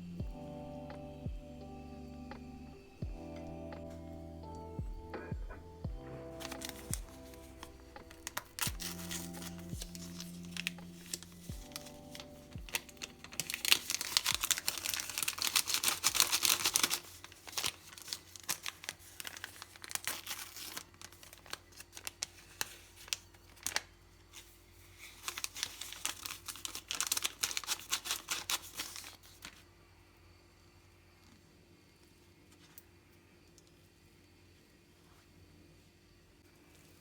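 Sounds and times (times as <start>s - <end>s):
packaging crinkling and tearing: 6.3s - 29.7s.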